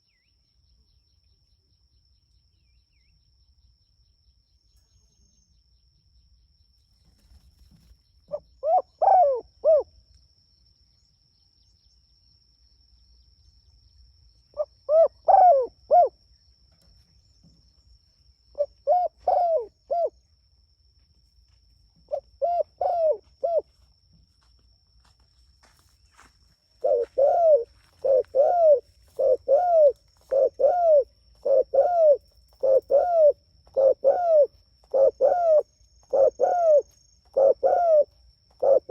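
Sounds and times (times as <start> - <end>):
dove cooing: 8.3 - 9.9, 14.6 - 16.2, 18.6 - 20.2, 22.1 - 23.7, 26.8 - 38.9.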